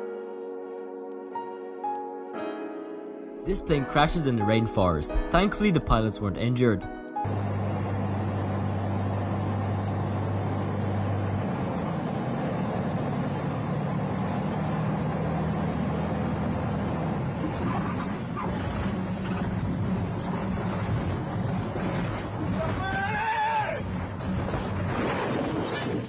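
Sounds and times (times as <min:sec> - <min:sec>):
light aircraft engine droning: 0:07.3 - 0:26.0
constant rushing noise: 0:16.5 - 0:26.0.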